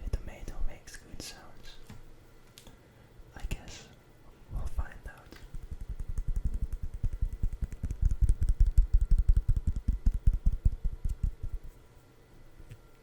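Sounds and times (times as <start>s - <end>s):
fingertip tapping: 5.5s - 11.6s.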